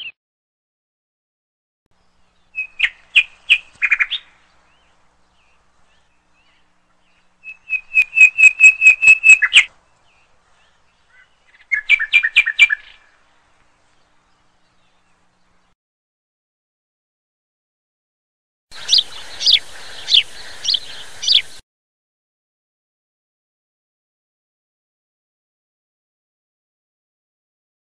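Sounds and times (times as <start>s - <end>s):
songbird chirping: 1.9s - 15.8s, 18.7s - 21.6s.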